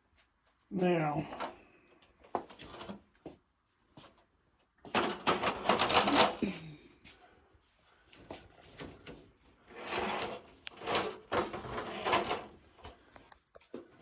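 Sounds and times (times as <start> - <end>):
rustling scrapes: 9.5 - 13.1.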